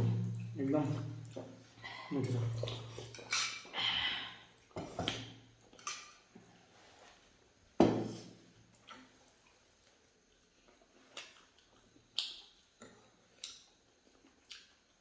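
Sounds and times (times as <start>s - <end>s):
wet eating smacks: 8.7s - 15.0s.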